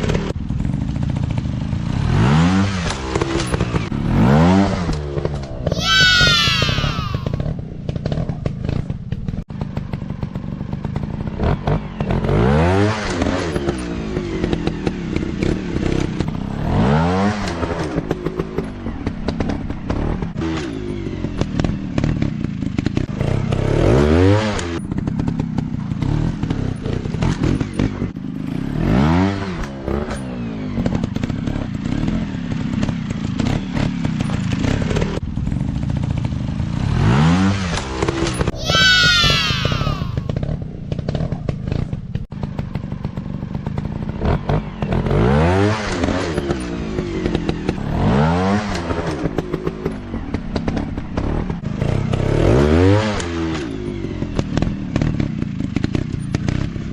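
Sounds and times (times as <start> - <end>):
dirt bike engines revving: 1.9 - 35.7, 37.0 - 43.0.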